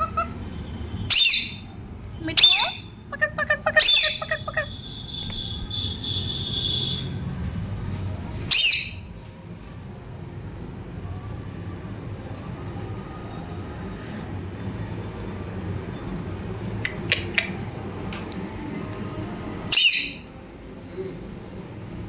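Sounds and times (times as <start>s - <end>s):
parrot chirps: 0.0s - 0.4s, 1.0s - 1.7s, 2.3s - 7.0s, 8.5s - 9.7s, 16.8s - 17.6s, 19.7s - 20.3s
parrot squawk: 0.0s - 0.4s, 1.1s - 1.7s, 2.3s - 5.4s, 8.5s - 9.1s, 19.7s - 20.3s
low background noise: 0.0s - 22.0s.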